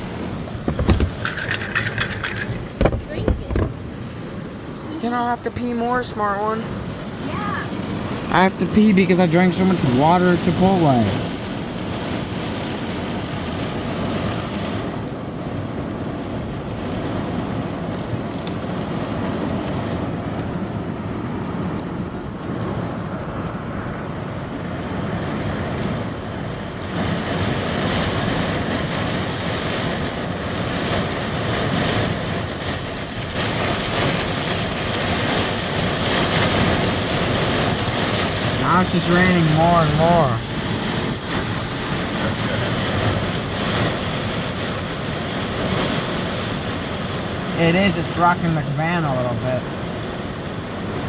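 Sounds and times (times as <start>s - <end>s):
heavy rain and wind on a van: 0.0s - 51.0s.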